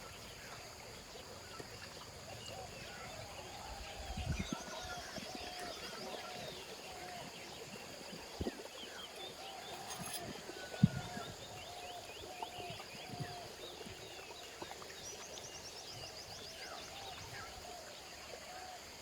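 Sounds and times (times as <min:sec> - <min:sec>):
birds calling and chirping: 0:08.4 - 0:14.0.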